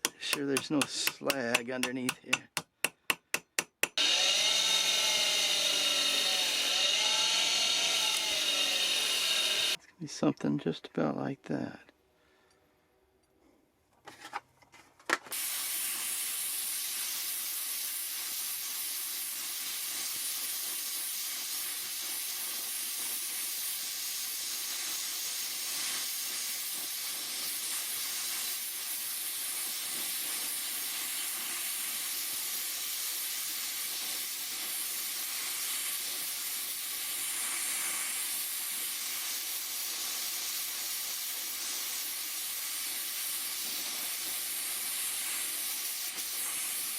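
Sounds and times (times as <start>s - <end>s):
welding torch flame hissing: 4.0s - 9.8s, 15.3s - 46.9s.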